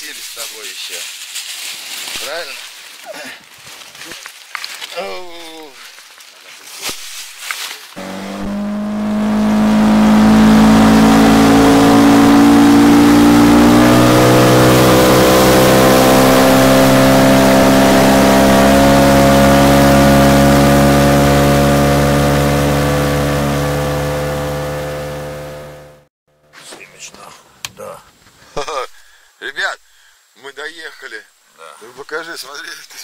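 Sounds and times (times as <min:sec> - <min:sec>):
outboard motor running: 0:08.0 - 0:26.1.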